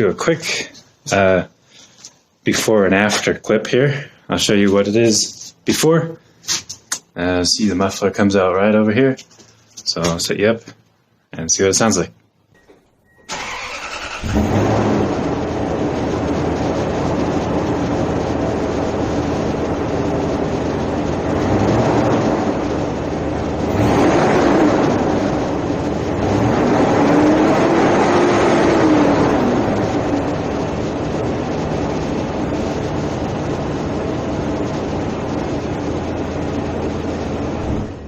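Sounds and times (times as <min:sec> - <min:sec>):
truck engine idling and revving: 0:13.3 - 0:38.0.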